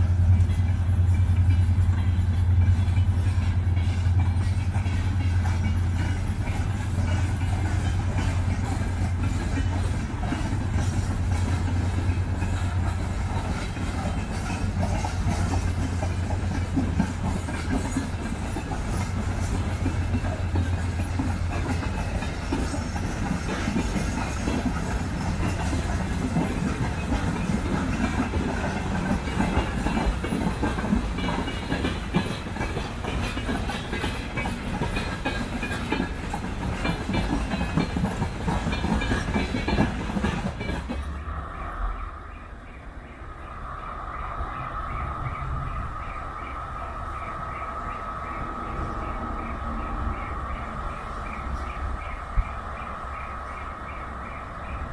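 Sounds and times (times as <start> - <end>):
wagon wheels clattering on rails: 0.0 - 41.2
diesel locomotive engine drone: 0.0 - 54.9.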